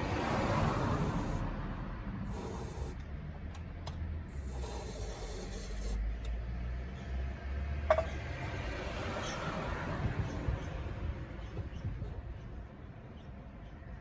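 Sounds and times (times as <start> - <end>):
hissing spray bursts: 0.0 - 1.5, 2.3 - 3.0, 4.3 - 6.0.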